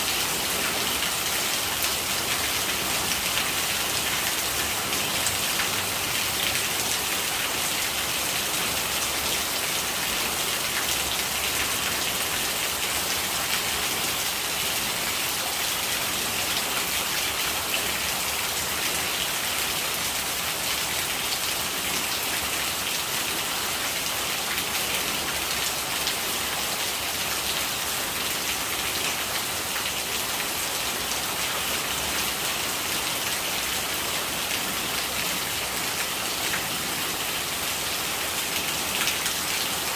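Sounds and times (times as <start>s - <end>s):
rain pattering: 0.0s - 22.9s.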